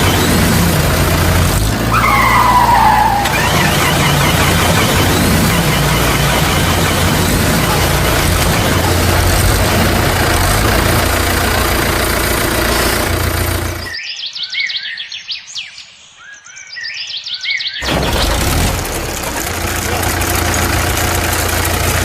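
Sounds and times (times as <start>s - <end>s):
tractor engine humming: 0.0s - 14.0s, 17.8s - 22.0s
birds chirping: 0.0s - 18.3s.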